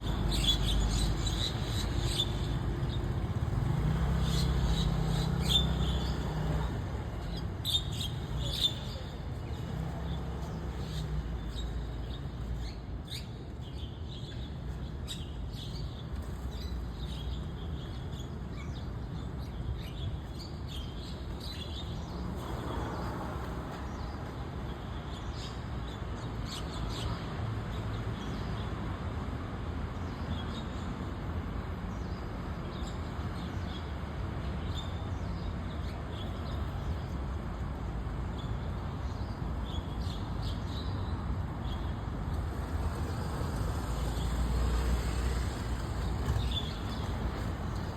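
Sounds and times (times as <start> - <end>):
starlings chirping: 0.0 - 24.2, 41.6 - 47.9.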